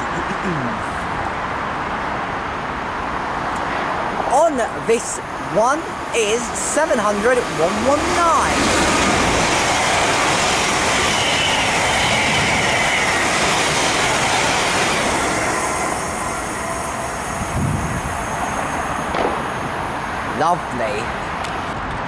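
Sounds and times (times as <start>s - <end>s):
train wheels rushing on rail: 2.8s - 22.0s
faint high whine: 9.0s - 20.8s.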